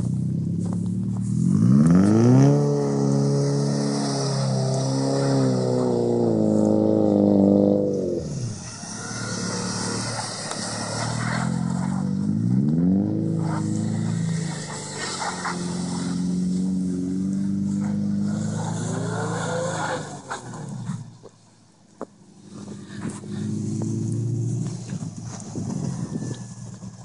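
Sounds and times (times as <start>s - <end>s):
car engine revving hard: 1.4s - 21.0s.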